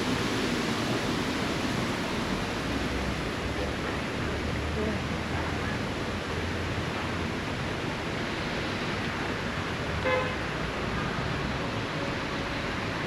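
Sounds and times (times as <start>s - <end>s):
seafront rushing noise: 0.0s - 13.0s.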